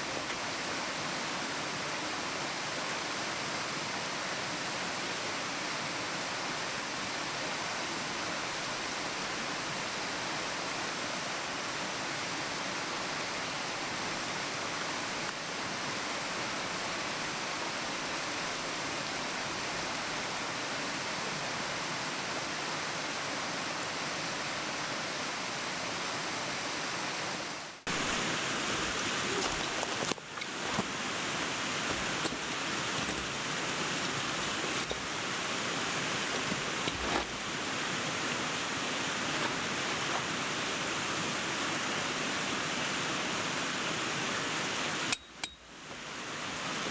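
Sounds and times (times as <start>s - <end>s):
mountain stream rushing: 0.0s - 46.9s
low bumps: 27.9s - 35.3s.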